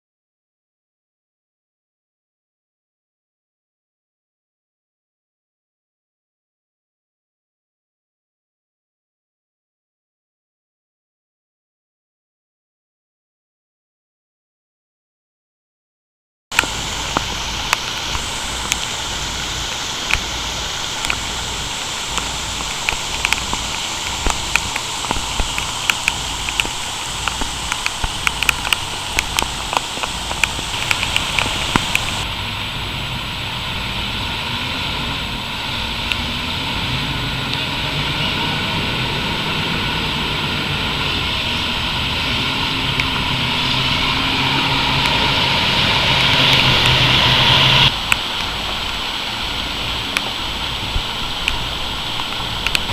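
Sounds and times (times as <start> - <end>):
heavy rain: 16.5 - 52.9
vehicle engine hum: 16.6 - 52.9.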